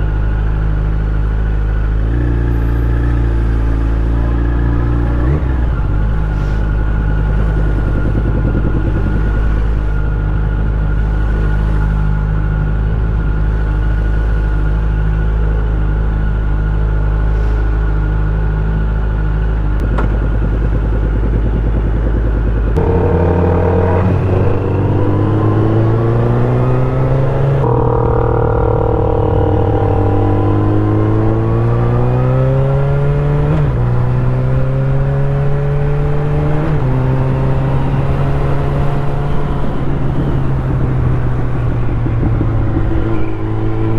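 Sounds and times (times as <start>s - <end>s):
motorcycle engine revving: 0.0s - 17.7s, 18.4s - 43.9s.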